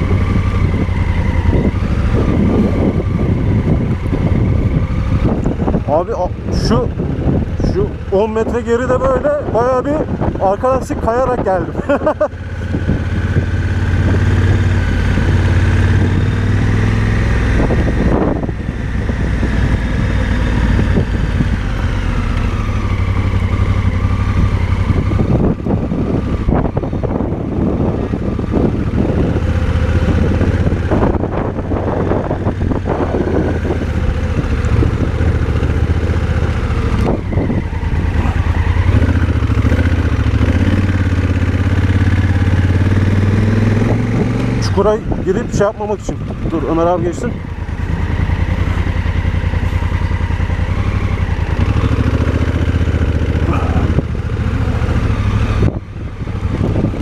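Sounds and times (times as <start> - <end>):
motorcycle engine running: 0.0 - 57.0
knocks and clatter from rough road: 32.9 - 41.2.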